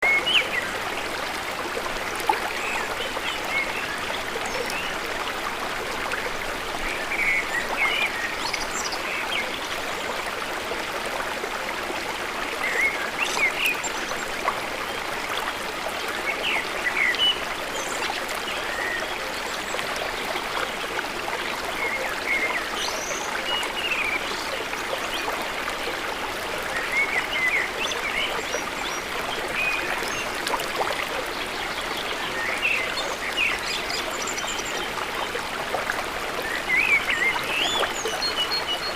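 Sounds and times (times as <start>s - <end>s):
stream running: 0.0s - 38.9s.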